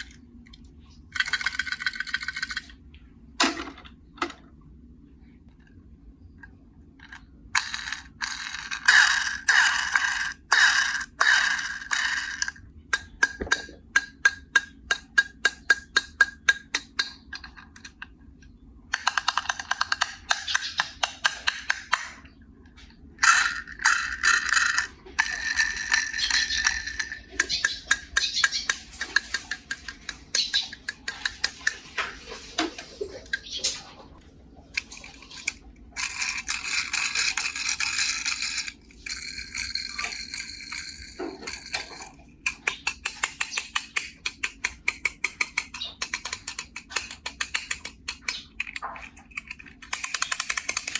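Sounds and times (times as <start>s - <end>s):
plastic rattling and scraping: 0.0s - 4.5s, 7.0s - 50.9s
quick clicks: 34.7s - 50.9s.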